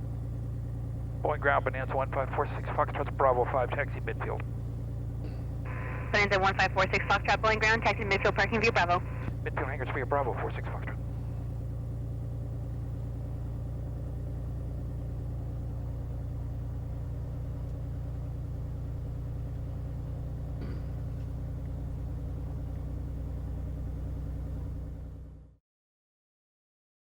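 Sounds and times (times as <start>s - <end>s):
aircraft piston engine drone: 1.2s - 13.5s.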